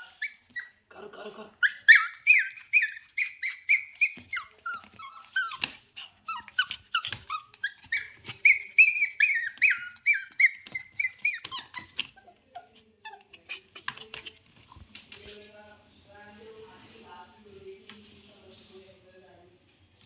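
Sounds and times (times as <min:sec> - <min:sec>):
dog whining: 0:00.0 - 0:14.4.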